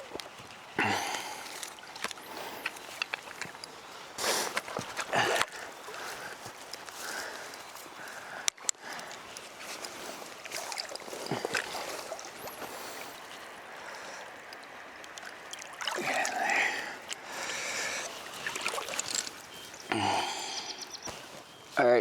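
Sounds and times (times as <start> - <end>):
flowing river water: 0.0 - 21.4
fish splashing at surface: 10.4 - 13.5, 15.2 - 16.9, 18.0 - 19.5.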